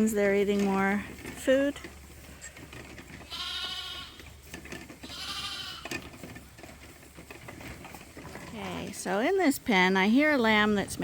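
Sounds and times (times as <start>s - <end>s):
lamb bleating: 3.2s - 4.3s, 5.0s - 6.0s.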